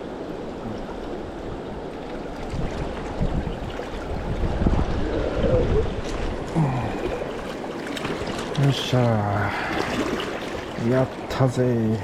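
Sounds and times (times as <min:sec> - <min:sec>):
river current rushing: 0:00.0 - 0:12.0
wind buffeting the microphone: 0:00.6 - 0:08.6.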